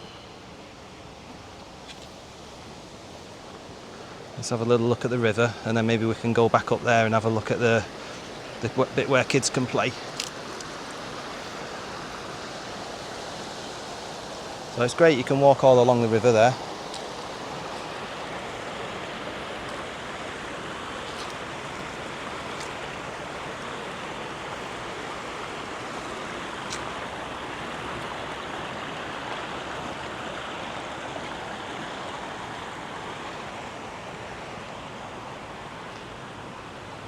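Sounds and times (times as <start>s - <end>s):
river water rushing: 0.0s - 37.0s.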